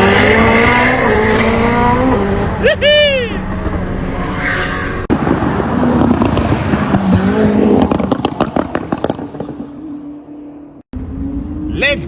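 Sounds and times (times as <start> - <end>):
sports car engine accelerating: 0.0 - 5.1
exhaust cracks: 3.4 - 9.9.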